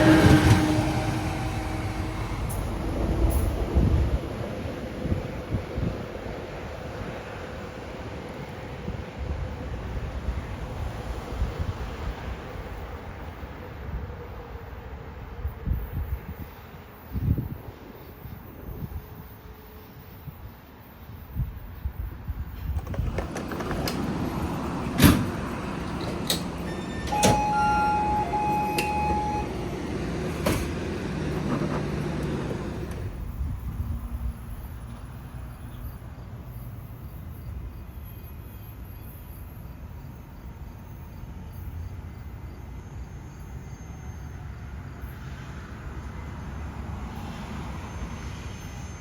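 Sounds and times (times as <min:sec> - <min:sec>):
train rumble: 0:00.0 - 0:49.0
brief high tone: 0:26.6 - 0:30.0.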